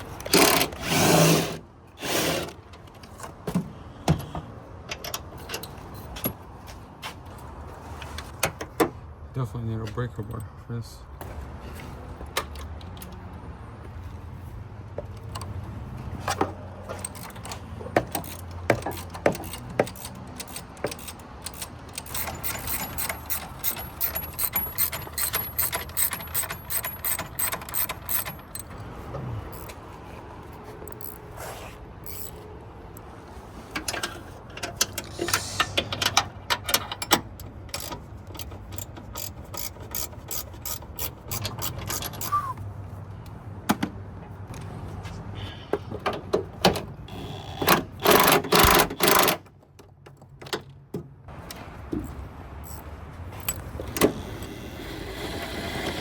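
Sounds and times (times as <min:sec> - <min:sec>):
metal tools knocking: 0:17.0 - 0:28.8
socket ratchet clicking: 0:17.0 - 0:28.8, 0:29.5 - 0:29.8, 0:30.8 - 0:31.2, 0:32.0 - 0:32.4, 0:37.0 - 0:42.4, 0:52.6 - 0:52.8.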